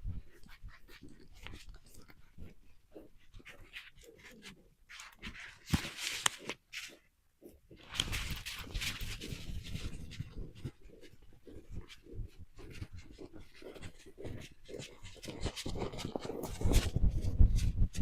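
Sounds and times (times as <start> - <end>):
dog panting: 0.0 - 5.3, 9.2 - 17.4
rustling: 0.0 - 18.0.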